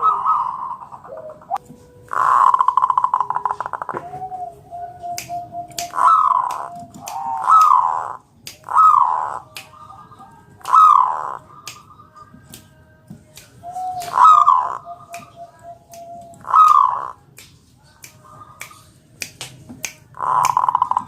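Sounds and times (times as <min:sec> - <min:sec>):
dove cooing: 0:00.0 - 0:12.0, 0:13.6 - 0:17.2, 0:20.2 - 0:21.0.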